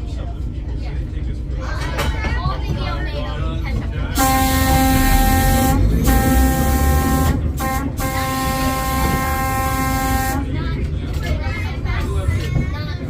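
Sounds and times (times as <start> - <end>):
moving trolley car rumble: 0.0 - 13.0
air horn blasts: 4.2 - 10.6.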